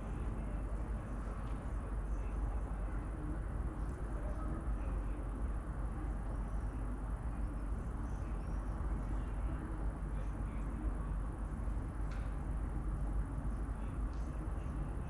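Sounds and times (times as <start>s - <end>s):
low outdoor rumble: 0.0s - 15.0s
faint bird chirps: 6.4s - 9.3s.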